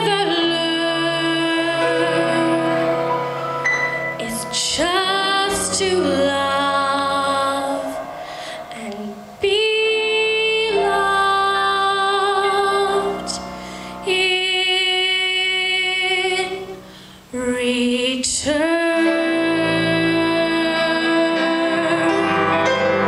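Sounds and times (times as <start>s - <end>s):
woman singing a slow ballad: 0.0s - 3.0s, 4.2s - 22.3s.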